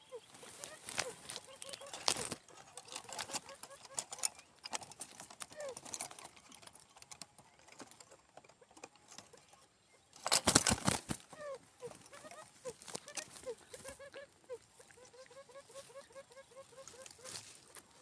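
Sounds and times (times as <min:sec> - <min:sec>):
quail calls: 0:00.0 - 0:04.6, 0:11.2 - 0:18.0.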